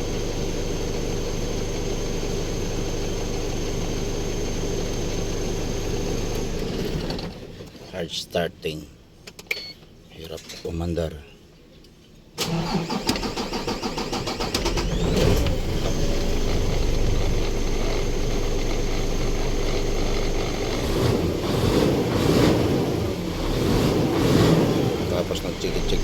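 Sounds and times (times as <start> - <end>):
starter cranking engine: 12.4 - 21.2
diesel engine running: 14.0 - 26.0.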